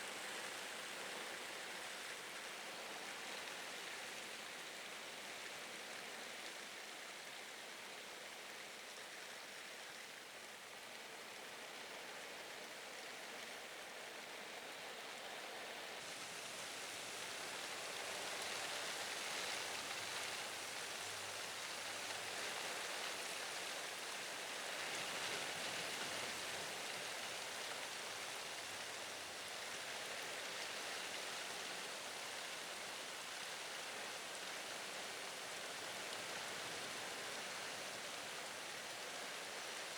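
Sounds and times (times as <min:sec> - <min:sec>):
wind and rain hiss: 0:14.9 - 0:39.9.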